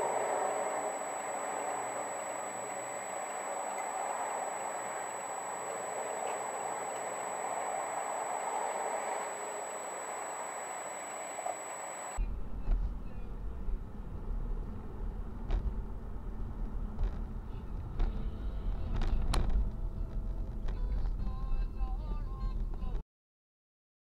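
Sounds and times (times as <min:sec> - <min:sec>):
road and wind noise hiss: 0:00.0 - 0:22.7
deep car rumble: 0:12.2 - 0:23.0.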